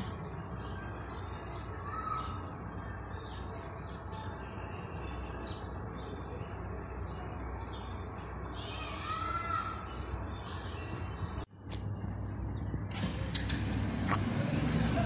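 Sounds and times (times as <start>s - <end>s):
small birds chirping: 0.0s - 14.3s
low outdoor rumble: 10.5s - 15.0s.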